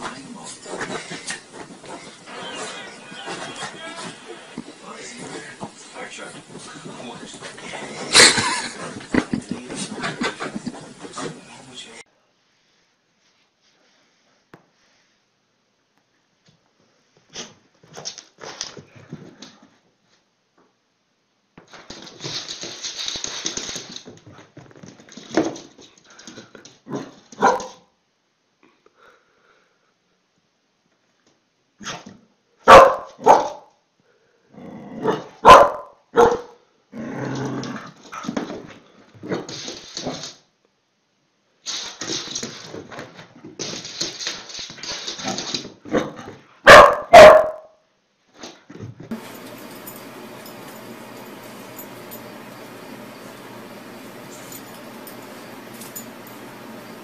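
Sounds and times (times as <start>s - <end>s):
dog scuffling: 0.0s - 12.0s, 21.6s - 27.8s, 37.6s - 40.4s, 41.7s - 47.6s, 48.4s - 57.0s
dog barking loudly: 27.4s - 27.8s, 32.6s - 33.7s, 35.0s - 36.6s, 46.6s - 47.7s.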